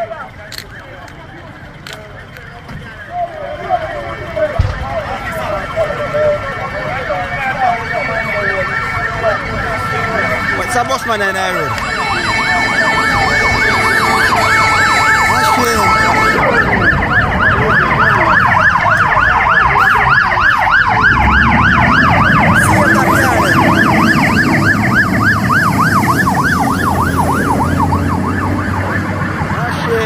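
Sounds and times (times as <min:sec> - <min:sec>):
fire engine siren yelping: 0:00.0 - 0:30.0
steady horn-like tone: 0:07.9 - 0:16.8, 0:20.7 - 0:27.9
low engine rumble: 0:11.3 - 0:30.0.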